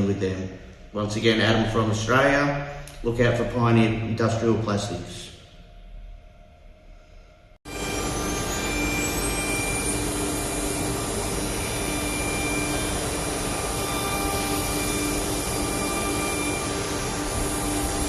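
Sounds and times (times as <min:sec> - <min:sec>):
high machine whine: 0:00.0 - 0:18.0
cnc router running: 0:07.7 - 0:18.0.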